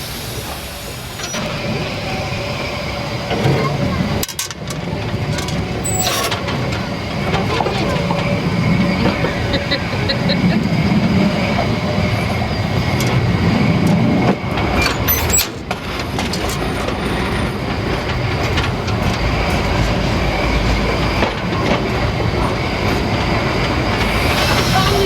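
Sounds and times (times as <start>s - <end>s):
steam train rolling on track: 0.0s - 25.0s
wheel clatter: 1.2s - 25.0s.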